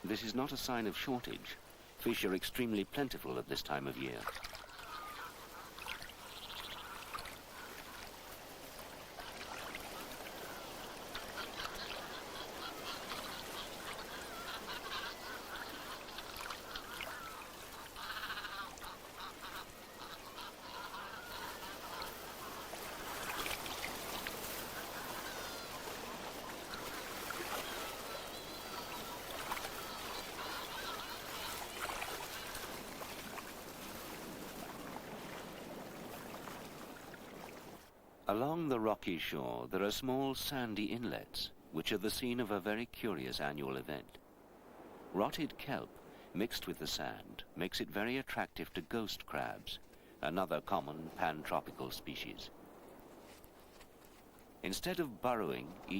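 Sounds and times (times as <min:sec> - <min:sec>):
cormorants calling: 0:00.0 - 0:37.8
water washing: 0:00.0 - 0:37.9.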